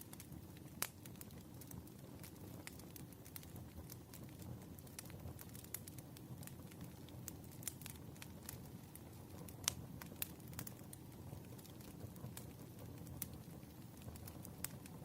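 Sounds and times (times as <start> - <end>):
sharp fire pops: 0.0 - 6.8
low rumble of flames: 0.0 - 15.0
wood fire crackling: 0.0 - 15.0.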